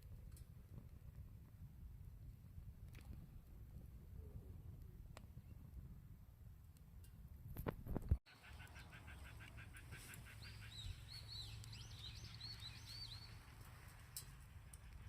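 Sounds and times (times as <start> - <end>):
small songbird singing: 8.3 - 13.7.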